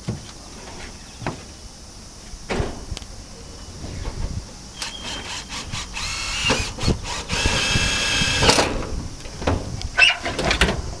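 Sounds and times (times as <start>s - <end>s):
power drill running: 4.8s - 8.5s.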